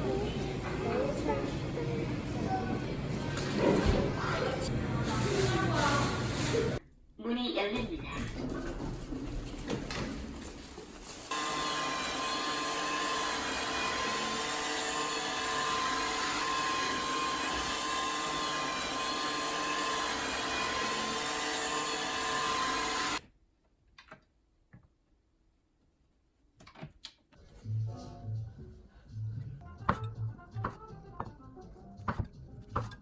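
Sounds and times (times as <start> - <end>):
electric motor whining hum: 11.3 - 23.2.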